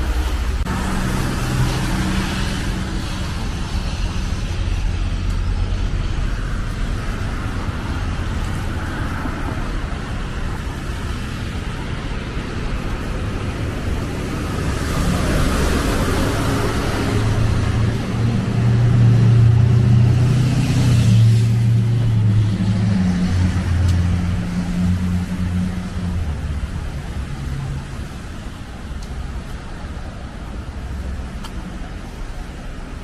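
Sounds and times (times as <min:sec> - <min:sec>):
cars driving past: 0:00.0 - 0:33.0.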